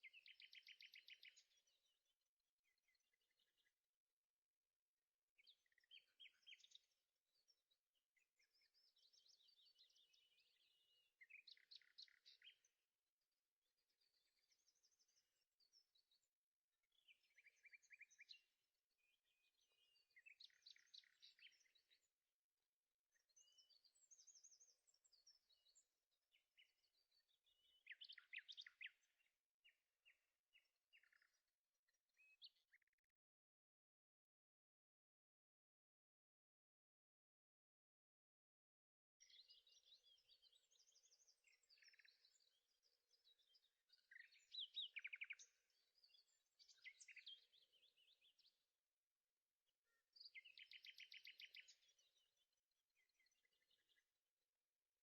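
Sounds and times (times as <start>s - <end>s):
faint birdsong chirps and trills: 0.0s - 55.0s.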